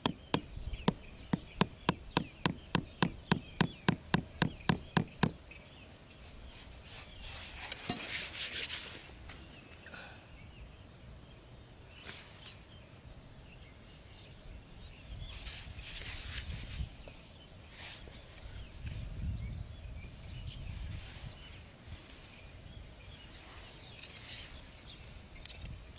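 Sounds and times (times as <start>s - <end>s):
rubbing and scraping: 4.6s - 9.2s.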